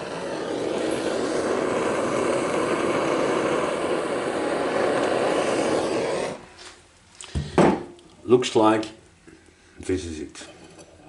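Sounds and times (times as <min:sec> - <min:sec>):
blowtorch flame rushing: 0:00.0 - 0:07.9.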